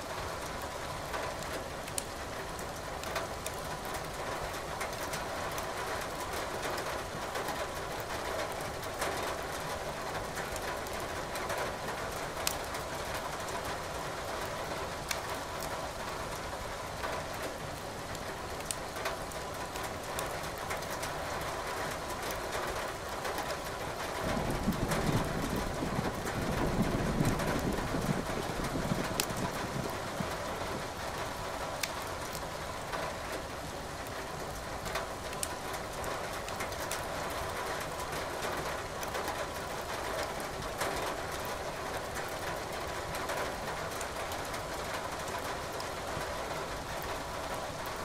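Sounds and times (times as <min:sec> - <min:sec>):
steady rain: 0:00.0 - 0:48.0
wood fire crackling and popping: 0:01.3 - 0:02.2, 0:03.0 - 0:03.6, 0:12.4 - 0:13.3, 0:15.0 - 0:15.7, 0:18.1 - 0:21.0, 0:24.6 - 0:32.5, 0:34.5 - 0:35.6
low rumble of thunder: 0:24.2 - 0:31.3.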